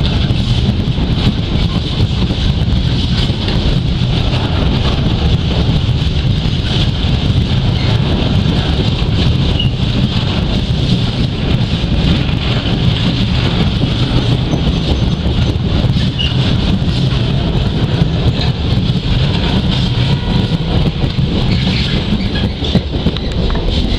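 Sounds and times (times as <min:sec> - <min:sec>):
freight train rumbling by: 0:00.0 - 0:23.9.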